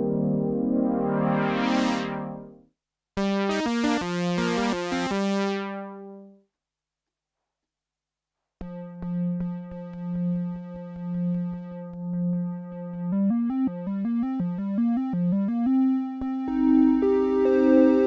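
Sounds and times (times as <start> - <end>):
synthesizer tone with filter sweep: 0.0 - 2.6, 3.2 - 5.9, 13.0 - 18.0.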